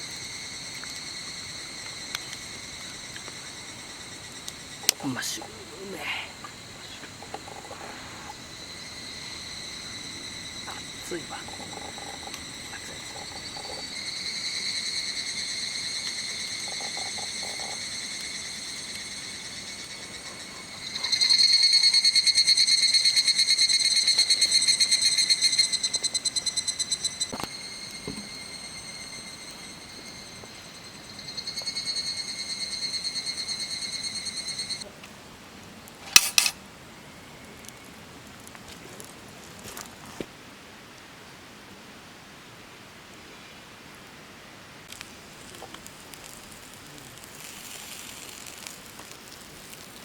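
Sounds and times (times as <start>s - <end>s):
insect trilling: 0.0s - 34.8s
sharp click: 36.1s - 36.6s.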